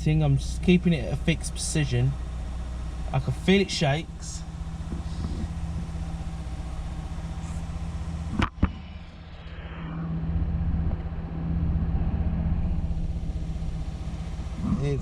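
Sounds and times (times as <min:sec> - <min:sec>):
car engine running with misfire: 0:00.0 - 0:09.4, 0:12.6 - 0:15.0.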